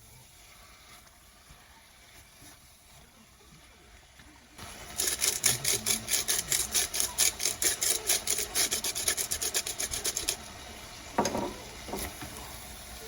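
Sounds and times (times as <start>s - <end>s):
rhythmic scraping strokes: 4.6s - 10.7s.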